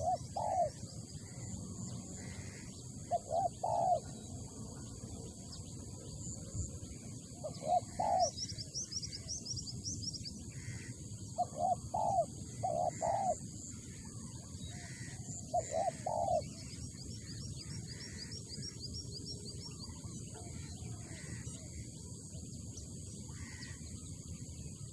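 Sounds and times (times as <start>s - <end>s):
dove cooing: 0.0s - 1.6s, 2.2s - 4.2s, 7.4s - 8.4s, 11.4s - 13.4s, 14.7s - 16.6s
small birds chirping: 0.0s - 24.9s.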